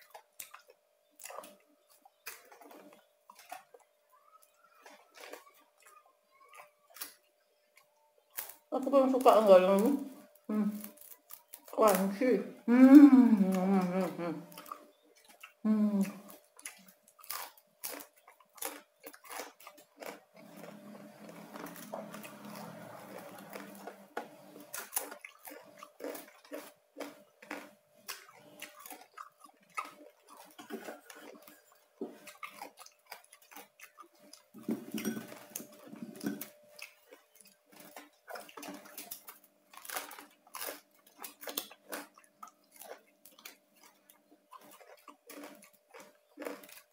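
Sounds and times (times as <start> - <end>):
crunchy chewing: 0.0 - 46.9
closed-mouth hums: 9.4 - 10.9, 12.2 - 14.7, 15.6 - 16.3.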